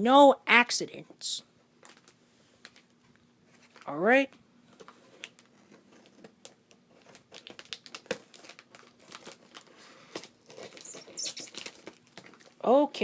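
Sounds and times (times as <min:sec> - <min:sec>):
packing material crinkling: 0:01.8 - 0:03.9, 0:04.7 - 0:12.7.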